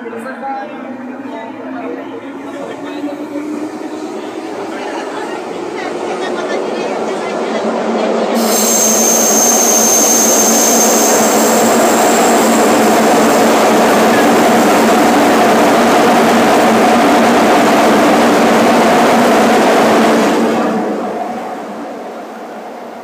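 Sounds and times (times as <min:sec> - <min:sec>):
wheels rumbling on rail: 0:00.0 - 0:23.0
thin high squeal: 0:08.4 - 0:12.6.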